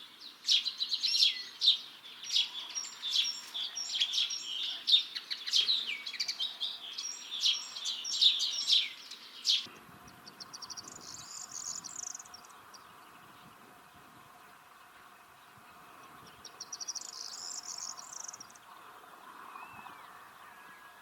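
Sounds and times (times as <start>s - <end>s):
linnet twittering song: 0.0s - 13.7s, 14.4s - 21.0s.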